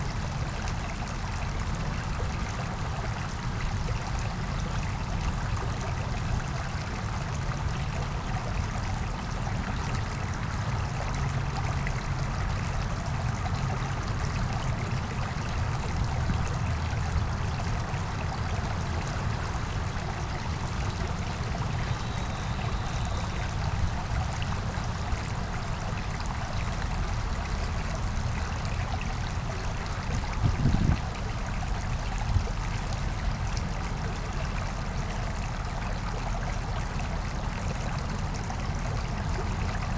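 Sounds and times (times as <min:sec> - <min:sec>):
brook babbling over rocks: 0:00.0 - 0:39.9.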